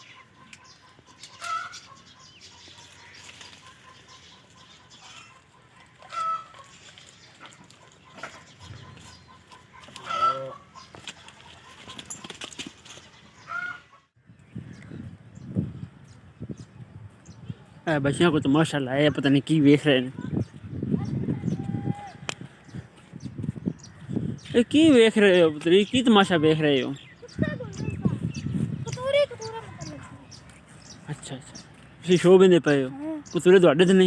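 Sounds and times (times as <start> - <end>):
chickens clucking: 0.0 - 14.1.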